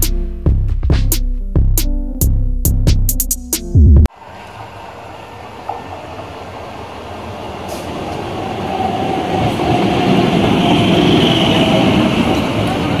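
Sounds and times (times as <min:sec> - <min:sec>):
electric train running past: 0:04.1 - 0:13.0.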